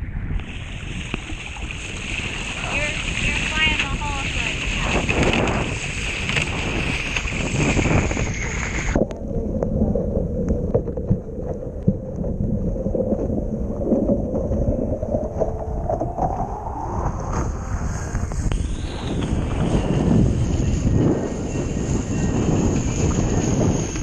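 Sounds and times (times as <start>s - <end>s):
wind buffeting microphone: 0.0s - 24.0s
water rushing past boat: 0.3s - 24.0s
slowly rising tone: 8.3s - 23.7s.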